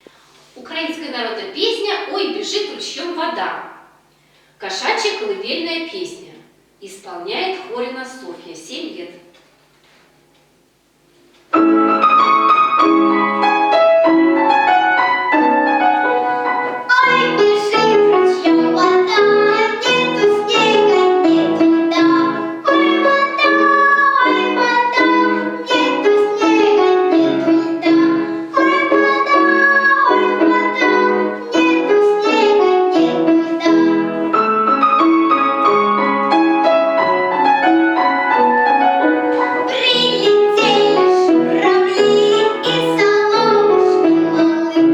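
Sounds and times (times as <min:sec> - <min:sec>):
piano children's song accompaniment: 0:11.5 - 0:44.9.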